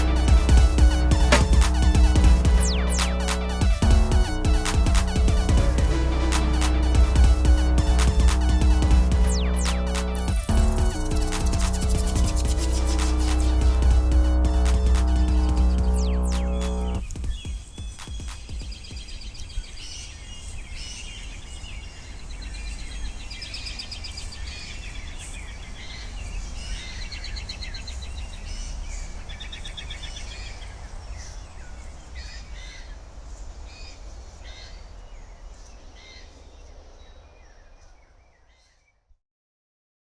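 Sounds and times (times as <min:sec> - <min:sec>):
steady low rumble: 0:00.0 - 0:17.1
birds chirping and trilling: 0:00.0 - 0:33.0.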